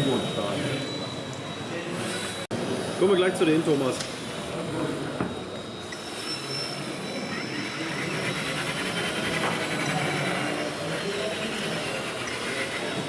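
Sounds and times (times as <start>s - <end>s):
busy exhibition hall din: 0.0s - 13.0s.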